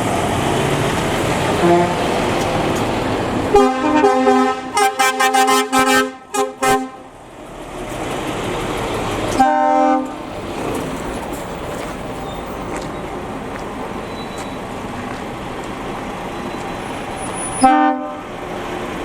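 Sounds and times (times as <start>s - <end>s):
trucks passing: 0.0s - 19.0s
truck horns tooting: 1.2s - 7.2s, 9.3s - 10.4s, 13.9s - 14.8s, 16.4s - 18.4s.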